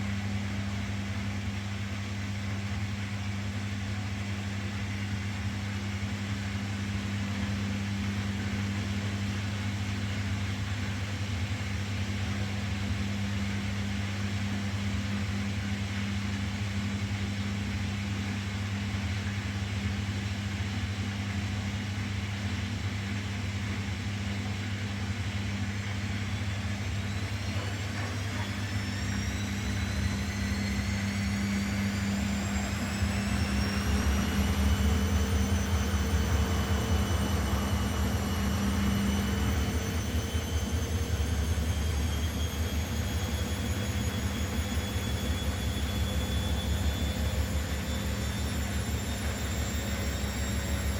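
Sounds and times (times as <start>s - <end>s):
washing machine motor hum: 0.0s - 50.9s
motor whine rising in pitch: 25.4s - 50.9s.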